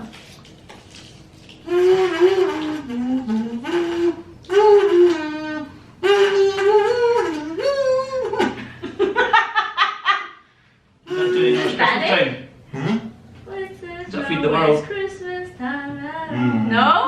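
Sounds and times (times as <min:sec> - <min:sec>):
woman humming a tune: 0:01.7 - 0:08.6, 0:14.9 - 0:17.0
laughter: 0:08.4 - 0:10.4.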